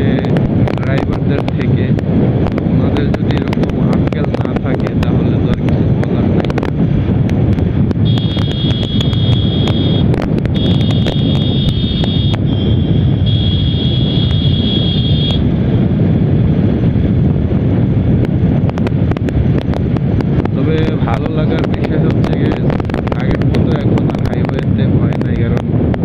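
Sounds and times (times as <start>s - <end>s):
wind and road noise: 0.0s - 26.0s
high steady tone: 8.0s - 15.5s.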